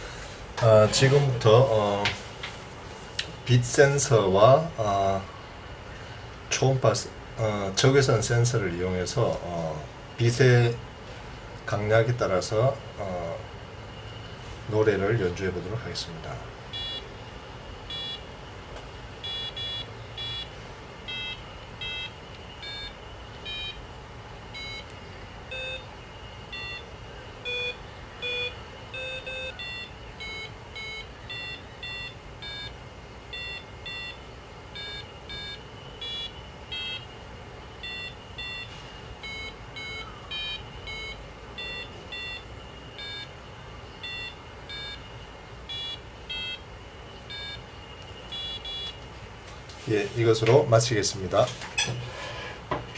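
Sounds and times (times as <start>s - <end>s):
faint high whine: 0.0s - 52.9s
piezo buzzer beeping melody: 16.7s - 18.3s, 19.2s - 49.0s.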